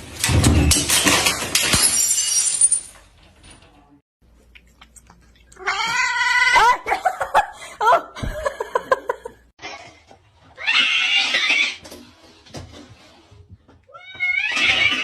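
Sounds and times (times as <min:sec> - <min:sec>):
cat meowing: 0:05.6 - 0:06.6.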